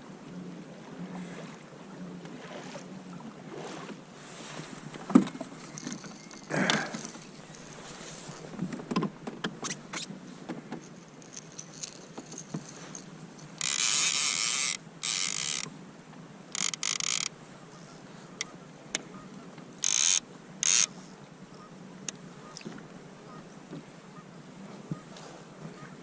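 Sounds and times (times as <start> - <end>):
fishing reel ratcheting: 11.1 - 15.7, 16.5 - 17.3, 19.8 - 20.9.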